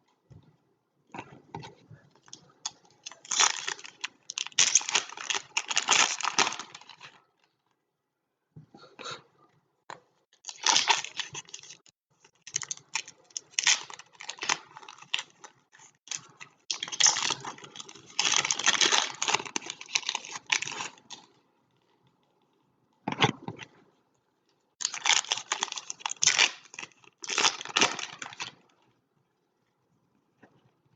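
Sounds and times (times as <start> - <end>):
wrapper crinkling and tearing: 2.6 - 7.6, 10.4 - 21.3, 24.8 - 28.6.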